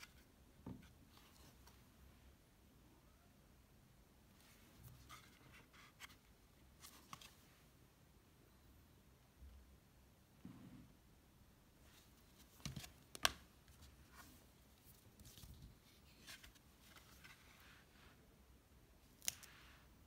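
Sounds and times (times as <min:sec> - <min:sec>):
cardboard pages rustling: 0:11.9 - 0:17.7.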